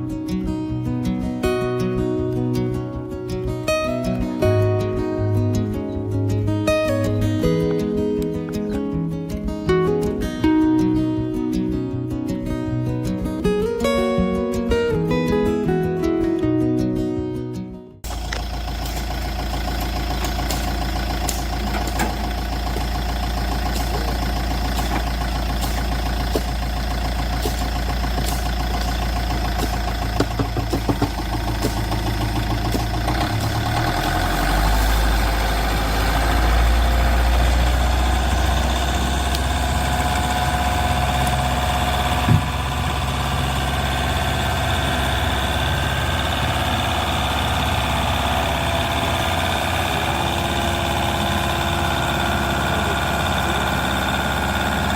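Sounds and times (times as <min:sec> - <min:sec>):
small vehicle engine running: 0:18.0 - 0:54.9.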